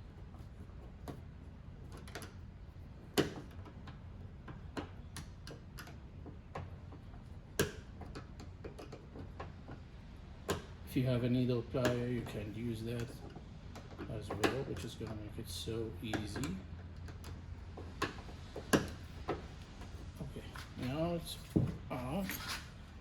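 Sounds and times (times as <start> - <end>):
screwdriver tapping on metal nut: 11.7 - 19.6.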